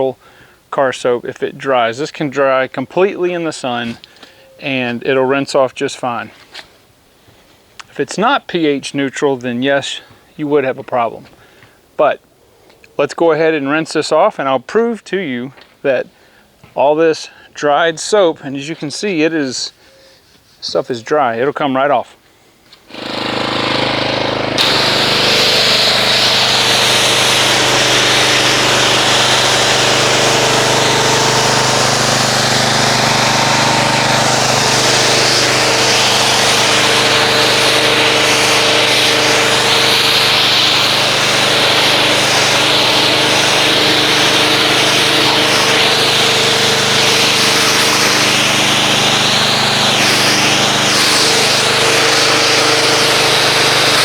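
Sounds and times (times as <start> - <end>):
pressure washer motor hum: 22.9 - 54.0
water spray hissing: 22.9 - 54.0.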